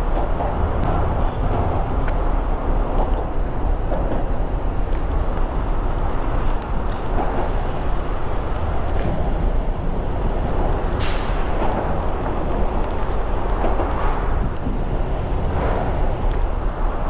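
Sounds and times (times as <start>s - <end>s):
wind on microphone: 0.0s - 17.0s
short hiss: 11.0s - 11.6s.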